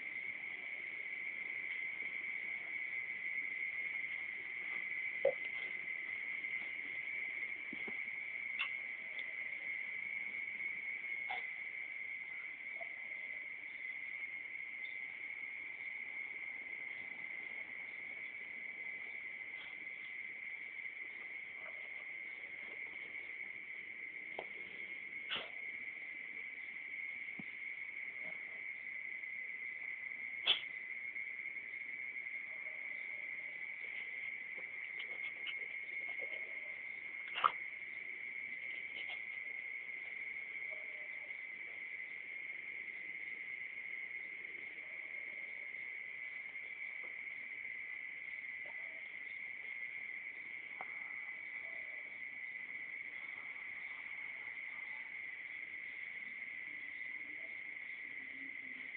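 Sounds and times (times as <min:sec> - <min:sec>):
insects chirring: 0:00.0 - 0:58.9
faint click: 0:30.4 - 0:30.8.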